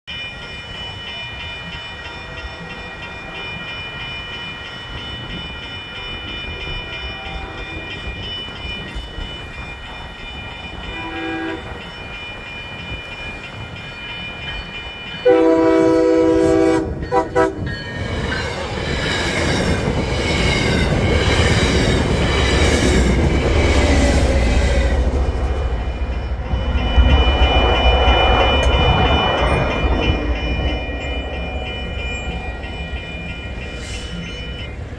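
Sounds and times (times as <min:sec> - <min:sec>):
crossing bells ringing: 0:00.1 - 0:34.9
train passing rumble: 0:00.1 - 0:34.9
train wheel noise: 0:00.1 - 0:34.9
faint train horn: 0:06.7 - 0:08.0, 0:10.8 - 0:11.8, 0:15.2 - 0:17.7
loud train horn blast: 0:10.9 - 0:11.7, 0:15.2 - 0:17.7.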